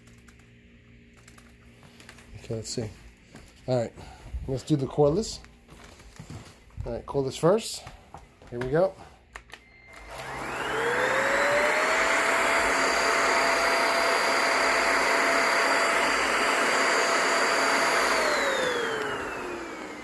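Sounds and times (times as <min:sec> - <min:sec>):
vacuum cleaner motor whine: 0:09.5 - 0:20.0.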